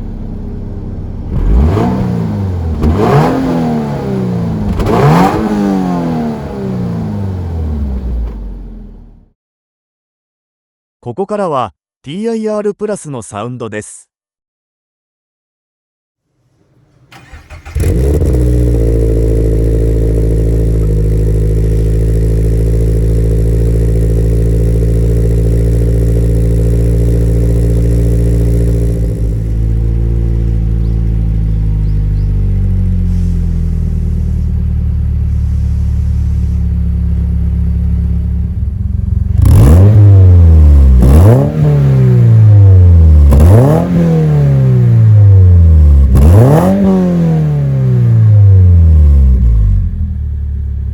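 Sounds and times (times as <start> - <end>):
car engine idling: 0.0 - 5.2, 16.4 - 41.1, 48.3 - 50.9
engine throttle blips: 0.0 - 9.2, 16.6 - 47.2.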